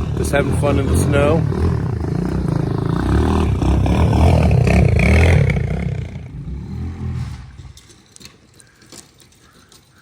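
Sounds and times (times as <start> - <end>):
motorcycle engine revving: 0.0 - 7.9.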